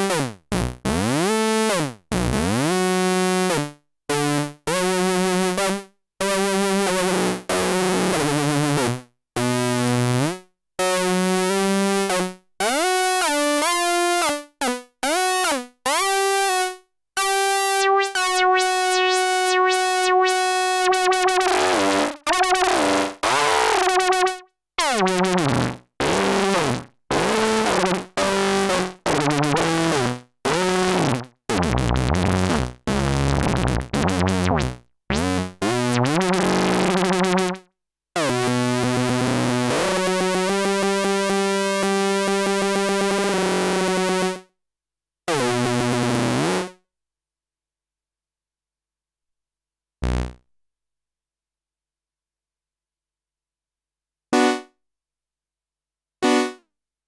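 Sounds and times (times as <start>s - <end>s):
synthesizer gliding notes: 17.3s - 22.8s.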